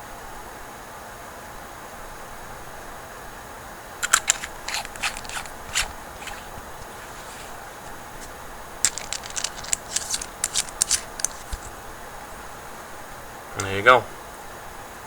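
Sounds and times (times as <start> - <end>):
faint steady hiss: 0.0 - 15.0
small metal parts clicking: 4.0 - 11.8.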